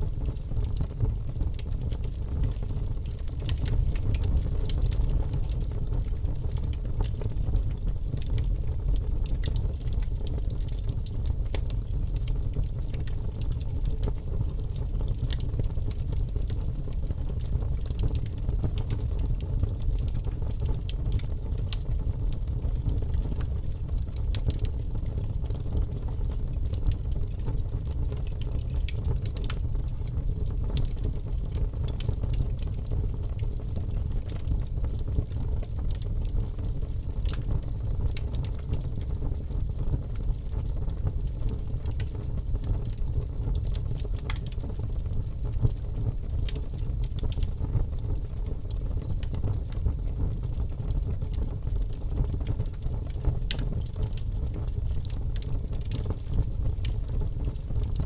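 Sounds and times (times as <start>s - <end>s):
burning logs crackling and popping: 0.0s - 58.0s
low rumble of fire: 0.0s - 58.0s.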